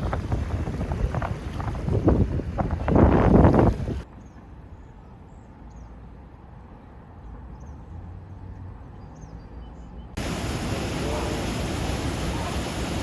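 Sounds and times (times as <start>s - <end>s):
low wind rumble: 0.0s - 4.9s, 10.2s - 13.0s
loud even rushing noise: 10.2s - 13.0s.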